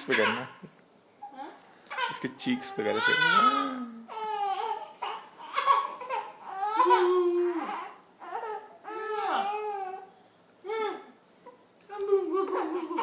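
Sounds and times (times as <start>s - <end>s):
baby babbling: 1.2s - 10.1s.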